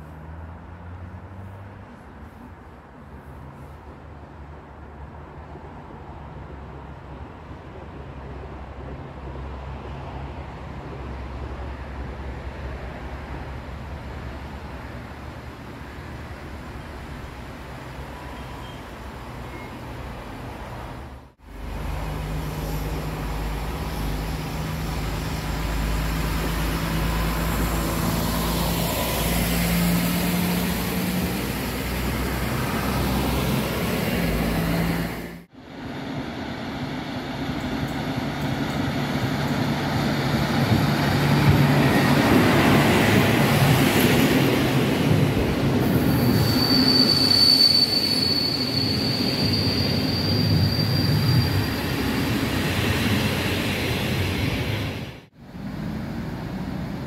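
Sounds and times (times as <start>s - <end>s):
train humming at platform: 0.0s - 57.0s
train passing with wheel clatter: 0.0s - 57.0s
high wheel squeal: 22.3s - 26.2s, 45.8s - 53.0s.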